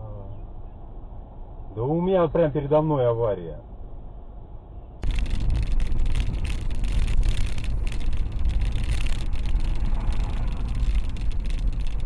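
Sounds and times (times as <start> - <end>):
car engine rumble: 0.0 - 12.0
road noise: 0.0 - 12.0
rough buffeting: 5.0 - 12.0.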